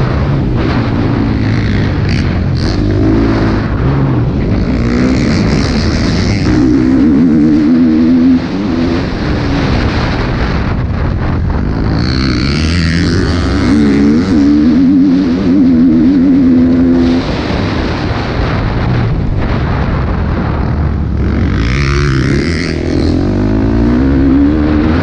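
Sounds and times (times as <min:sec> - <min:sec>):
motocross bike engine running hard: 0:00.0 - 0:25.0.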